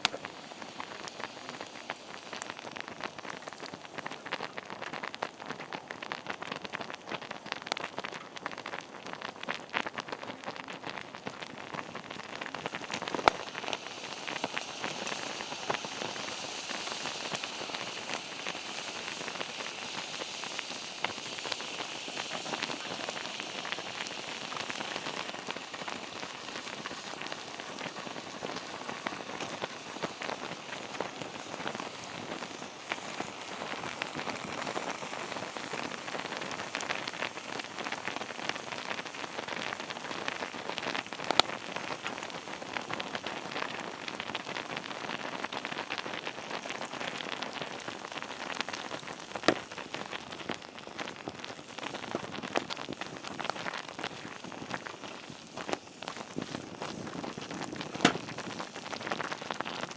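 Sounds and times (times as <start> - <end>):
campfire crackling: 0.0 - 59.9
high hiss: 12.7 - 26.9.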